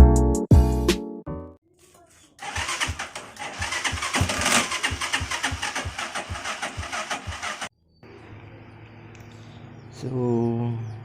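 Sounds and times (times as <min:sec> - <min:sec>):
motorcycle starter cranking engine: 0:02.4 - 0:07.7.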